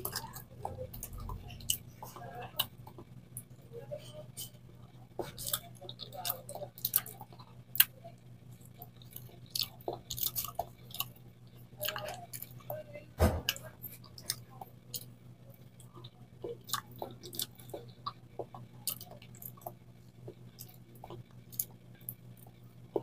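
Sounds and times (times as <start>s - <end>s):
faint steady hum: 0.0s - 23.0s
person chewing banana: 5.2s - 8.0s, 8.6s - 12.7s, 13.9s - 15.1s, 15.7s - 23.0s
thump: 13.2s - 13.5s.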